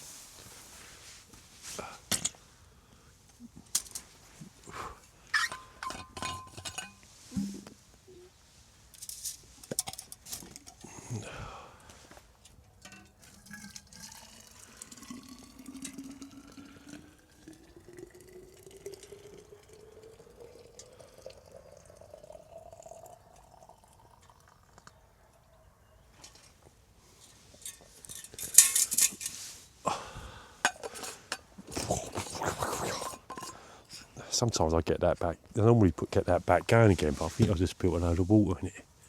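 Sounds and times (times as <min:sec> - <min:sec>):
pots and utensils clattering: 0:05.4 - 0:07.7, 0:12.8 - 0:14.4, 0:27.2 - 0:29.5, 0:30.6 - 0:33.6
water pouring into a vessel: 0:13.2 - 0:24.8.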